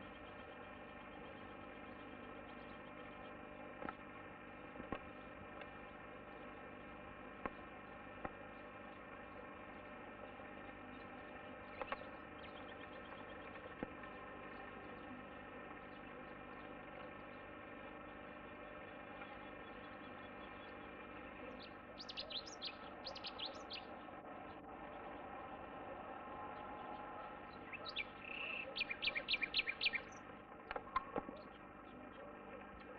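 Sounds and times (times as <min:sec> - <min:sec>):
faint steady hum: 0:00.0 - 0:32.9
bird chirping: 0:09.7 - 0:32.9
sharp clicks: 0:11.7 - 0:12.1.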